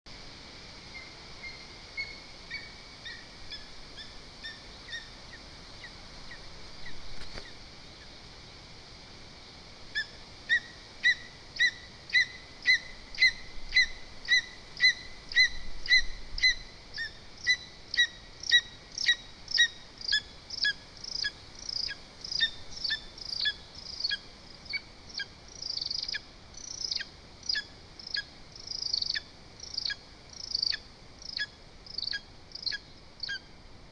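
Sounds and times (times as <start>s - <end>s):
eagle yelping calls: 10.0s - 30.8s.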